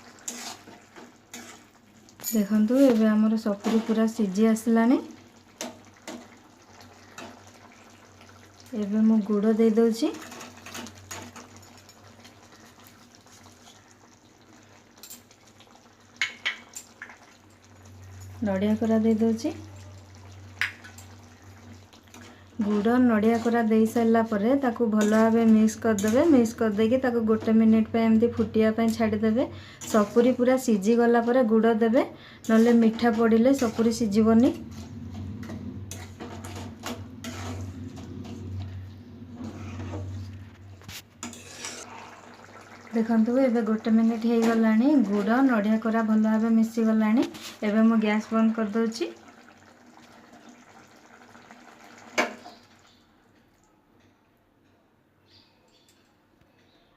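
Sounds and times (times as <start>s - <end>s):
chutney bubbling in a pan: 0.0s - 31.6s, 41.2s - 53.2s
spoon stirring and knocking in pan: 16.1s - 17.2s, 32.5s - 38.8s.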